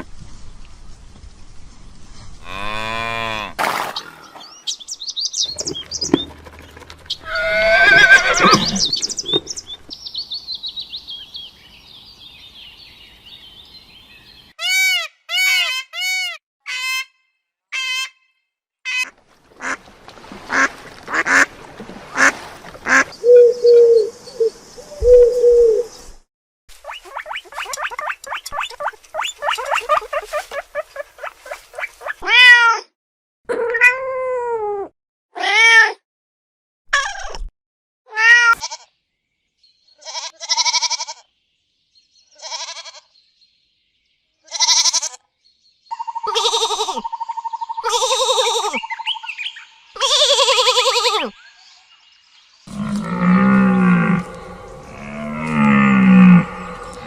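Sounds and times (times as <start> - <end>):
arching whining calls: 5.3 - 9.9, 52.7 - 57.0
animal calls: 5.4 - 9.8, 52.7 - 57.0.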